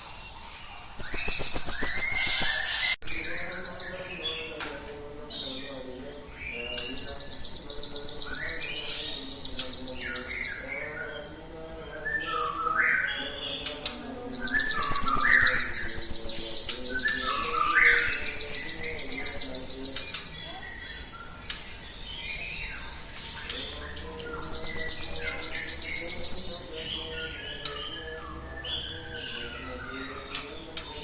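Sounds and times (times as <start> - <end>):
bird trilling: 1.0 - 4.2, 14.3 - 20.3, 24.4 - 26.8
lower bird chirps: 1.0 - 4.5, 6.5 - 11.2, 12.0 - 31.0.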